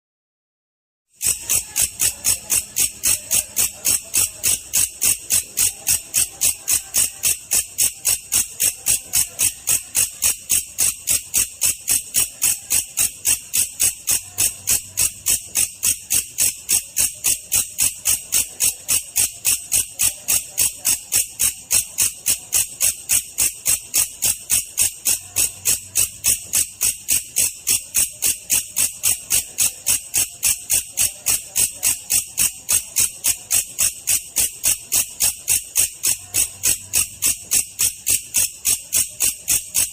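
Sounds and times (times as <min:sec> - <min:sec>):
katydid chirping: 0:01.2 - 0:31.7.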